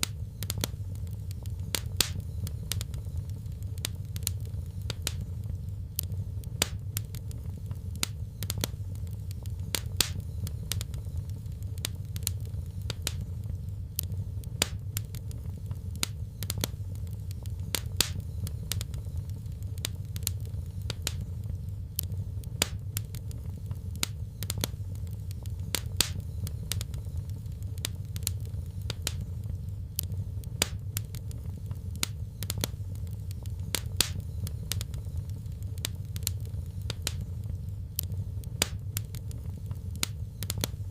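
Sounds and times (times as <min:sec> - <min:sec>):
low rumble of flames: 0:00.0 - 0:40.9
wood fire crackling: 0:00.0 - 0:40.9.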